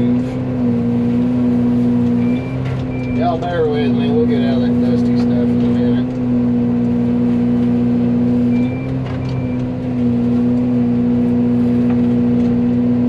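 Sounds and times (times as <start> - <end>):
excavator mulcher droning: 0.0 - 13.0
short high beeps: 2.2 - 3.4, 8.4 - 9.6.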